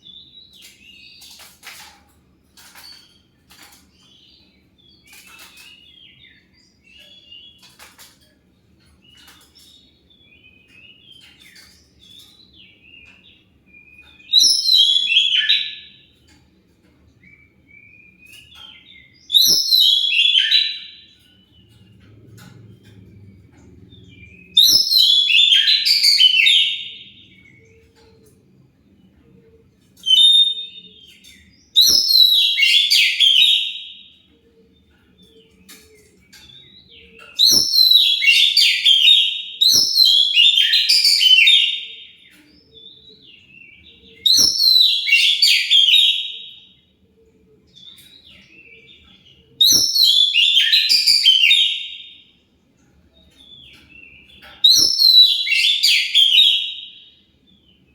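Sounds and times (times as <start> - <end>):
bird singing warbling phrases: 17.4 - 28.3, 35.2 - 46.7, 47.9 - 52.3, 53.2 - 57.9.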